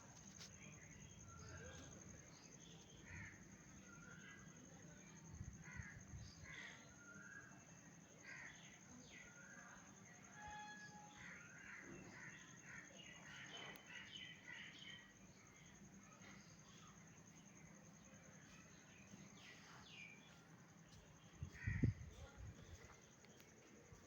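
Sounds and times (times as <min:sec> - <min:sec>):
crow-like caws: 0:11.2 - 0:12.9, 0:21.5 - 0:22.0.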